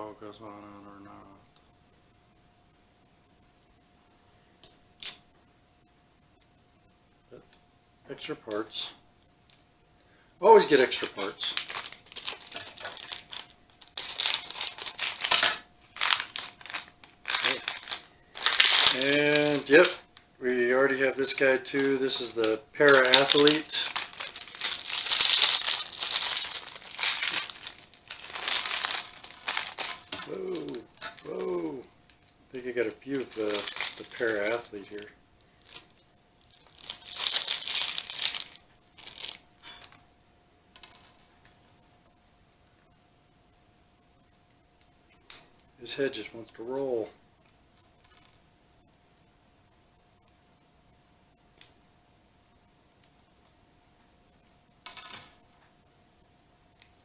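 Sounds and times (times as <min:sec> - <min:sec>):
plastic bag crinkling and tearing: 0:10.5 - 0:40.0.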